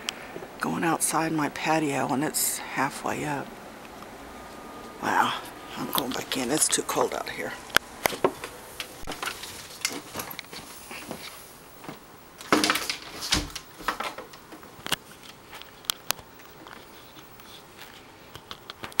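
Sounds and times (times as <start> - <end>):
footsteps: 4.4 - 18.1.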